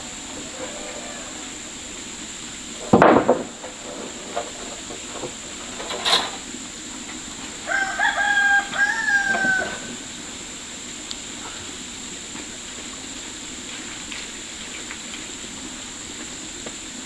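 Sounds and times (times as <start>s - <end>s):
rooster crowing: 0.3s - 1.8s, 7.6s - 10.2s
loud thump: 2.8s - 3.6s.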